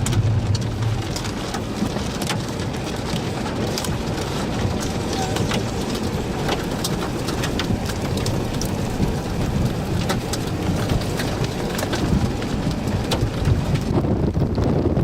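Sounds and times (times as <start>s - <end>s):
rain pouring: 0.0s - 14.6s
deep wind rumble: 0.0s - 15.0s.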